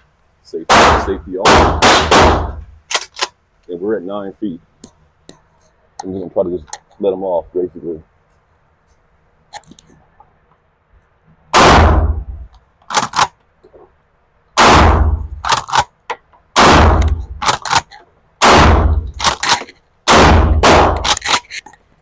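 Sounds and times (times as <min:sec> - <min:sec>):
shotgun blasts: 0:00.7 - 0:02.6, 0:11.5 - 0:12.4, 0:14.6 - 0:15.6, 0:16.6 - 0:17.8, 0:18.4 - 0:21.3.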